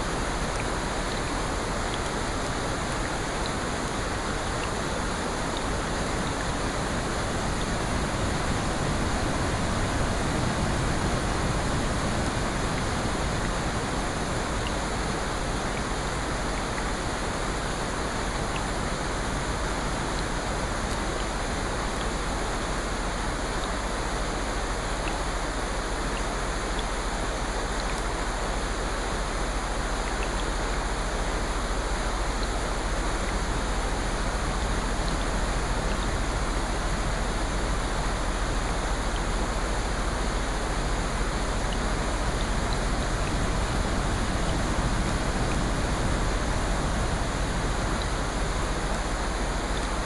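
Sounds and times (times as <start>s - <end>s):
rain rushing: 0.0s - 50.0s.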